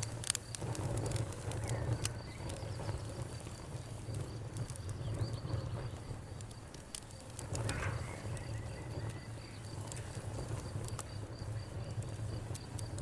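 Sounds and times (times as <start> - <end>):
crickets chirping: 0.0 - 13.0
wood fire crackling and popping: 0.0 - 13.0.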